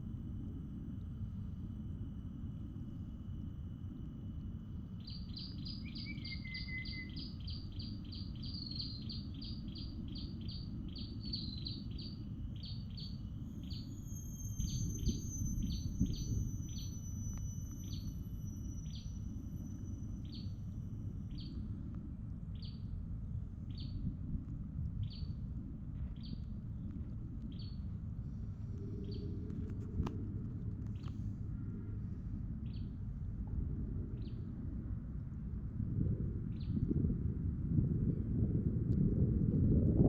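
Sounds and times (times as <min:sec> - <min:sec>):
low outdoor ambient rumble: 0:00.0 - 0:40.0.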